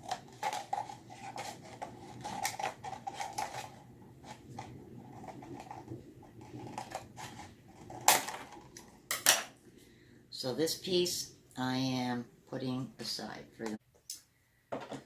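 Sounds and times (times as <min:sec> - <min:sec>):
plastic crinkling: 0:00.0 - 0:08.8.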